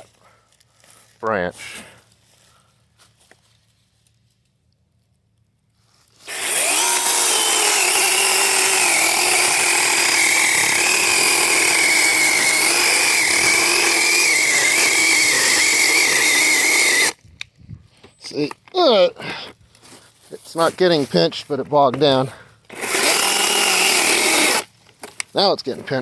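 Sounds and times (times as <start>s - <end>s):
electric chainsaw cutting branch: 6.2s - 17.2s, 22.7s - 24.7s.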